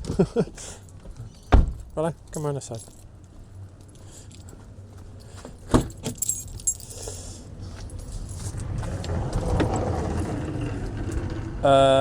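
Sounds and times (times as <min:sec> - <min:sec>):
keys jangling: 0:02.3 - 0:03.1, 0:03.8 - 0:04.6, 0:05.2 - 0:08.6
passing car road noise: 0:07.2 - 0:12.0.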